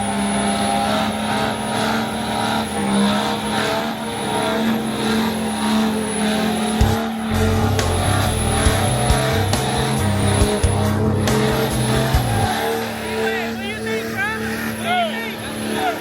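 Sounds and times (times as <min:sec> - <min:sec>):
truck engines droning: 0:00.0 - 0:16.0
low thumps: 0:06.8 - 0:12.5.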